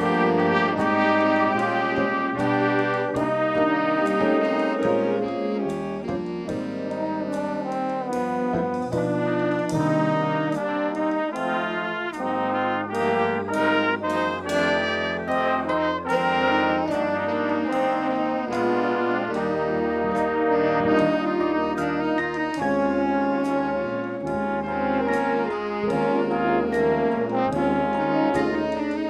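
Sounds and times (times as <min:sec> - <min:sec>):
brass ensemble playing: 0:00.0 - 0:29.0.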